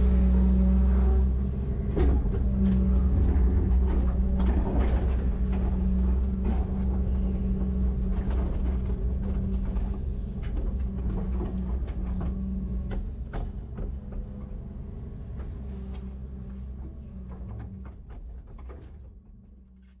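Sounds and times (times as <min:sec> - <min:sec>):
diesel machinery running: 0:00.0 - 0:18.7
metal clanks and creaks: 0:01.8 - 0:14.6.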